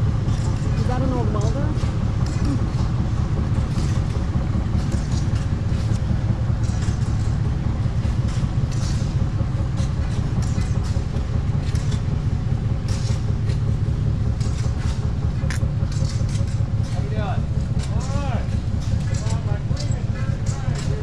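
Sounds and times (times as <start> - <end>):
engine running steadily: 0.0 - 21.0
light clicks and ticks: 14.4 - 21.0.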